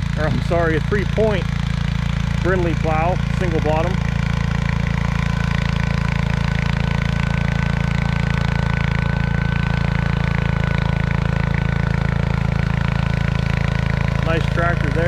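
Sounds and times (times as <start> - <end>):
garden tractor engine under load: 0.0 - 15.0.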